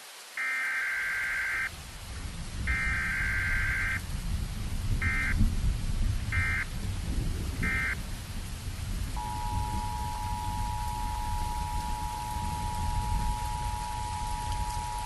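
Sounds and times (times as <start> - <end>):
synthesized thunder and rain: 0.4 - 15.0
two-tone alert signal: 9.2 - 15.0.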